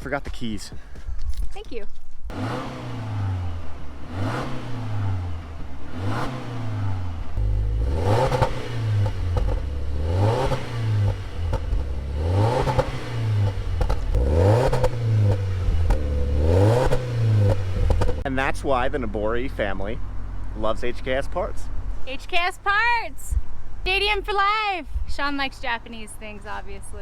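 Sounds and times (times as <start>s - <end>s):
car engine revving: 2.3s - 21.6s.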